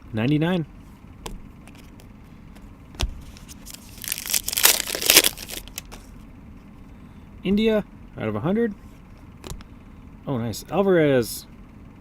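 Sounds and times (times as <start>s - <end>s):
wrapper tearing and crinkling: 3.6s - 6.0s.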